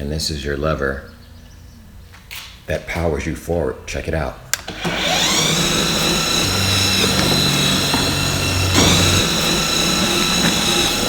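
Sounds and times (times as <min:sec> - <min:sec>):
electric mower drive motor whining: 0:04.5 - 0:11.0.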